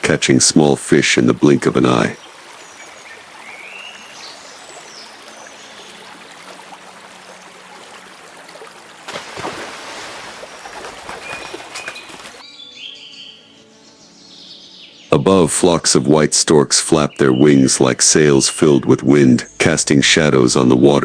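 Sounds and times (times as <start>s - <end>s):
birds chirping: 0.0s - 9.0s, 10.1s - 21.0s
running water: 0.0s - 12.4s
water rushing and splashing: 0.0s - 12.4s.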